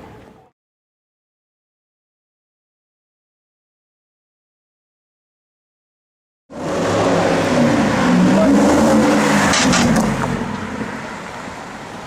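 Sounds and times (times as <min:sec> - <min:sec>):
car engine accelerating hard: 0:06.5 - 0:11.5
exhaust cracks: 0:09.2 - 0:10.6.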